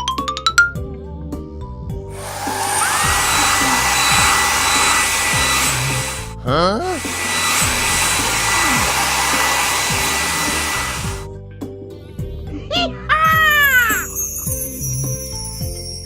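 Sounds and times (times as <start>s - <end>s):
background music: 0.0s - 16.0s
loud rushing hiss: 2.2s - 6.3s, 6.9s - 11.3s
rising swoop: 2.2s - 6.3s, 7.0s - 11.3s.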